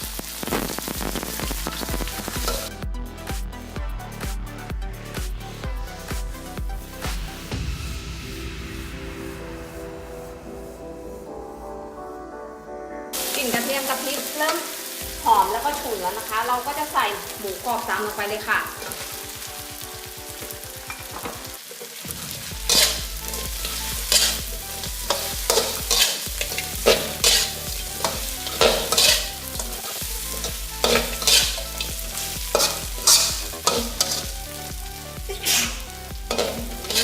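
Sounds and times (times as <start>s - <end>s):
meat sizzling in hot oil: 0.0s - 2.8s, 13.2s - 37.0s
spatula scraping a pan: 22.7s - 24.4s, 25.0s - 31.9s, 32.5s - 34.4s, 35.4s - 37.0s.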